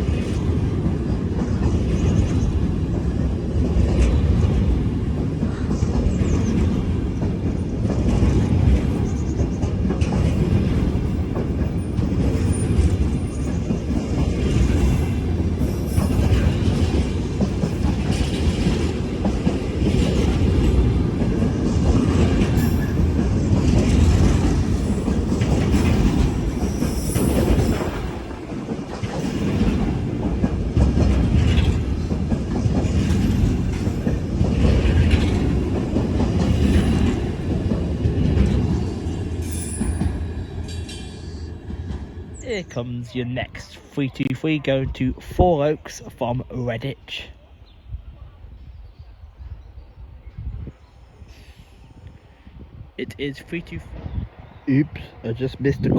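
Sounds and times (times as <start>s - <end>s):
clickety-clack over rail joints: 0.0s - 42.8s
train wheels rumbling on rails: 0.0s - 47.2s.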